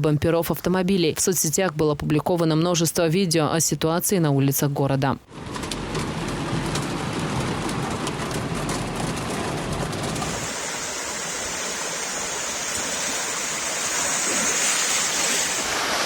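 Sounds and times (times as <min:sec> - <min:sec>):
heavy rain: 0:05.3 - 0:16.0
running floodwater: 0:05.3 - 0:16.0.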